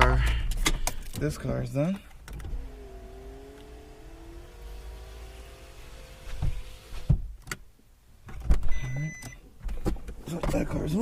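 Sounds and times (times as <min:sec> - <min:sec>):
car engine running: 0:02.2 - 0:07.1
thumps: 0:05.4 - 0:07.6.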